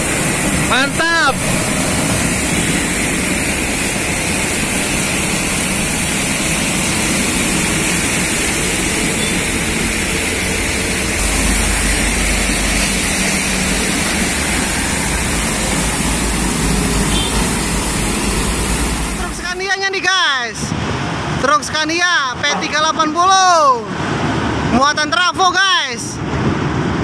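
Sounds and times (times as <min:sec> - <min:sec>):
heavy truck engine: 0:00.0 - 0:24.8, 0:26.2 - 0:27.0
road traffic rumbling: 0:00.0 - 0:27.0.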